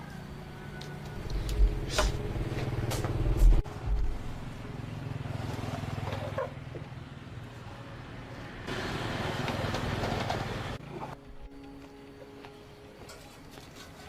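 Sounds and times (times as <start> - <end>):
vehicle engine running: 1.1 - 11.2.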